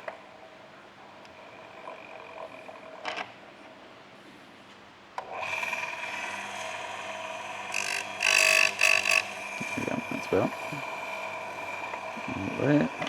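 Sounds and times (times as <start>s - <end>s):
chainsaw sharpener whining: 5.4s - 13.0s.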